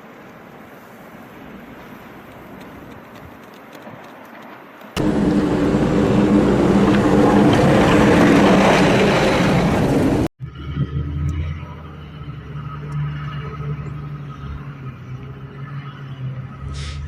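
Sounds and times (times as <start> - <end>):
rushing noise: 5.0 - 10.3
vehicle engine drone: 5.0 - 17.0
hiss: 16.7 - 17.0.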